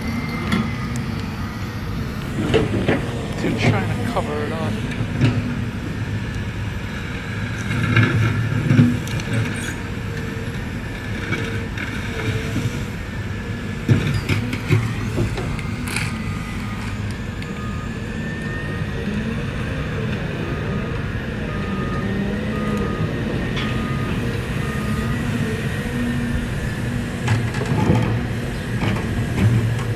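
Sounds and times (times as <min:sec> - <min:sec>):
backup alarm beeping: 0:00.0 - 0:06.8, 0:14.2 - 0:29.4
diesel engine running: 0:00.0 - 0:29.9.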